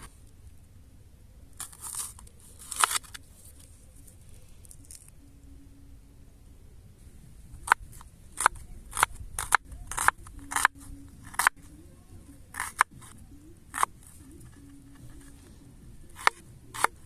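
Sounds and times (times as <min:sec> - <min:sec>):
knife cutting food: 0:08.4 - 0:11.6, 0:12.5 - 0:15.3.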